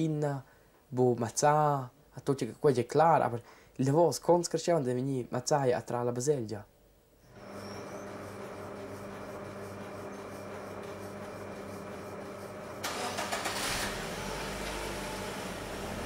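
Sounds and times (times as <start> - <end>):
car engine humming: 12.8 - 16.0.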